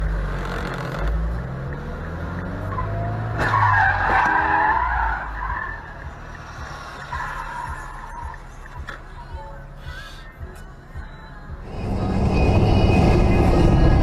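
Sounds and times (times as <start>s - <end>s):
car tyres skidding: 2.6s - 8.5s
low engine rumble: 8.2s - 14.0s.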